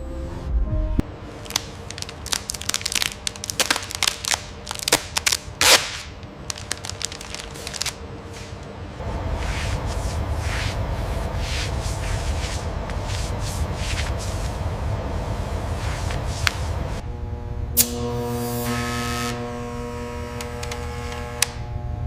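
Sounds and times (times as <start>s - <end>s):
faint steady hum: 1.0s - 22.0s
crackling and snapping: 1.3s - 8.7s.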